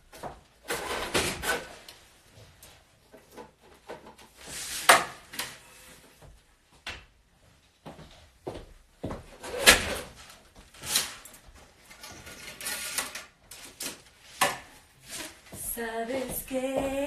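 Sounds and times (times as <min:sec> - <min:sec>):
rustling of things handled: 0:07.4 - 0:17.0.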